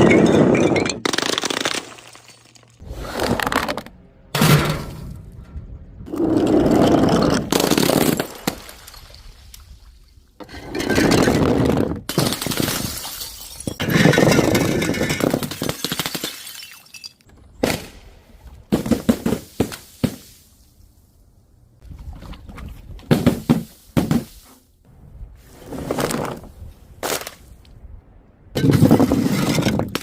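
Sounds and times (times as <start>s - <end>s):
glass bottles shattering: 0.0s - 2.8s, 12.1s - 17.3s.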